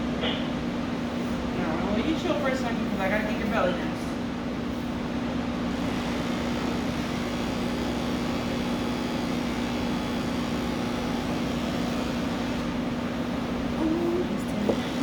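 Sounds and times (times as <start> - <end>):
electric clippers humming: 5.7 - 15.0.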